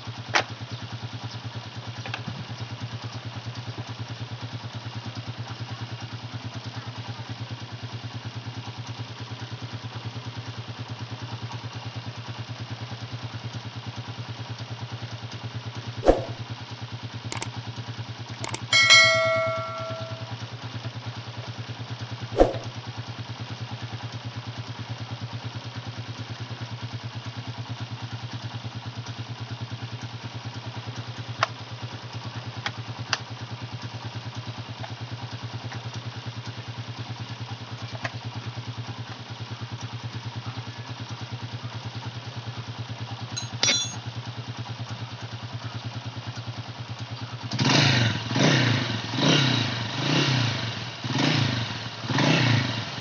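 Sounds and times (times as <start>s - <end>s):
motorcycle engine idling: 0.1s - 15.0s, 23.6s - 47.5s
sharp knock: 16.0s - 16.4s, 22.4s - 22.7s.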